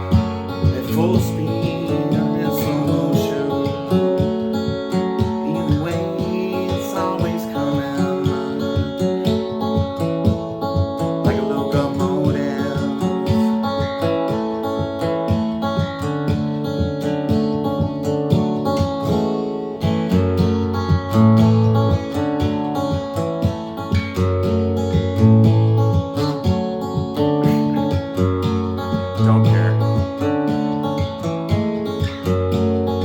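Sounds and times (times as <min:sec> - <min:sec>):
acoustic guitar music: 0:00.0 - 0:33.0.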